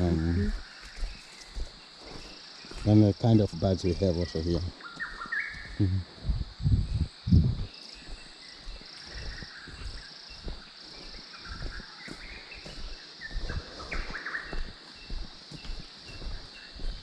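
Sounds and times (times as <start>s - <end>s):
birds calling: 0.0s - 17.0s
high insect drone: 0.0s - 17.0s
low thumps: 5.8s - 7.7s.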